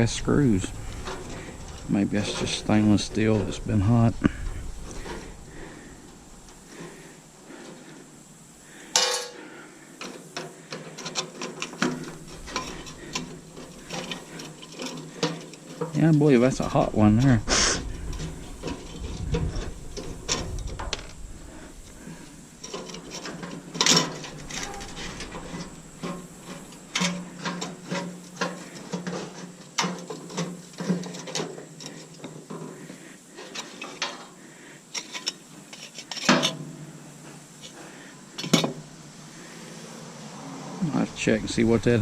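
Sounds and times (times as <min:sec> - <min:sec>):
metallic clicks and scrapes: 0:00.0 - 0:07.0, 0:10.0 - 0:32.8, 0:33.4 - 0:36.7.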